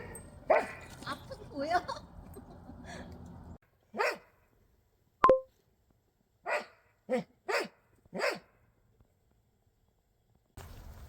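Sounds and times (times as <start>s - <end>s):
small dog barking: 0.0s - 0.9s, 4.0s - 4.3s, 6.5s - 8.5s
short sharp ping: 5.2s - 5.5s.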